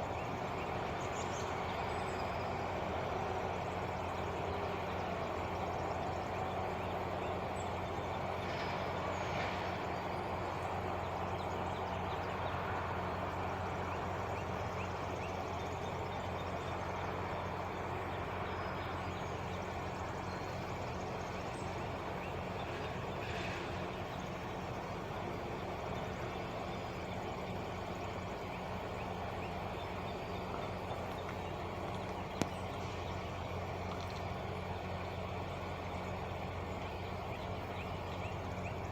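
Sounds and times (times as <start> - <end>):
diesel truck engine idling: 0.0 - 38.9.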